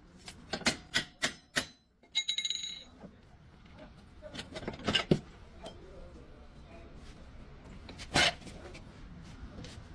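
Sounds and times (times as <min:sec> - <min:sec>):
metal tools clinking: 0:02.0 - 0:03.0.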